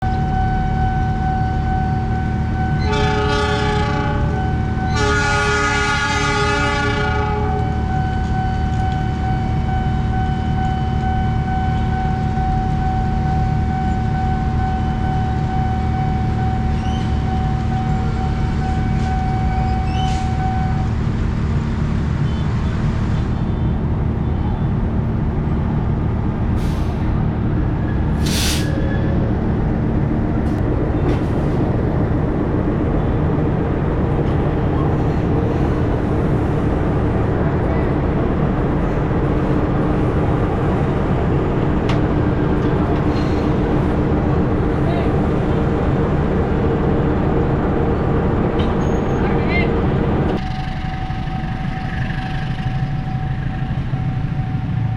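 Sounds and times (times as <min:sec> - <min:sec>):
diesel locomotive rumbling: 0:00.0 - 0:54.9
train horn blasts: 0:02.4 - 0:20.9.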